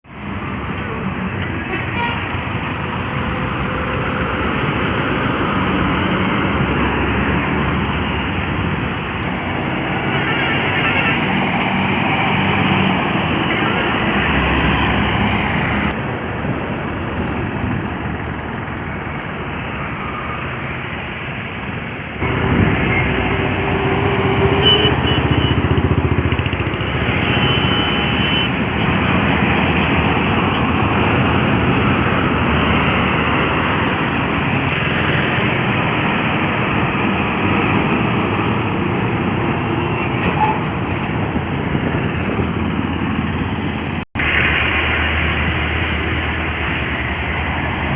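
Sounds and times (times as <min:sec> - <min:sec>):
heavy trucks on highway: 0:00.0 - 0:47.9.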